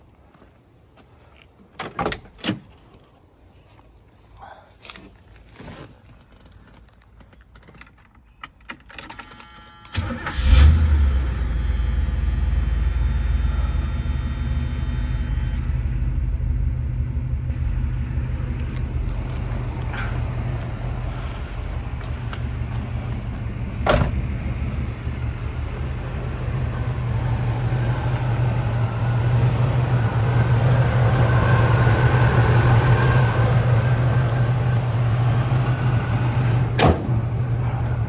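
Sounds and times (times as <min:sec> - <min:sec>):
keys rattling: 0:06.1 - 0:09.9
starter motor cranking: 0:09.3 - 0:15.9
car engine idling: 0:09.9 - 0:38.0.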